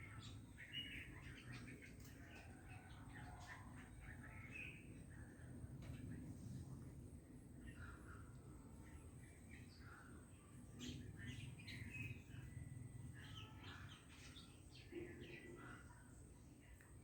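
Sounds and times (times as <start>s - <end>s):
faint bird chirping: 0.0s - 17.0s.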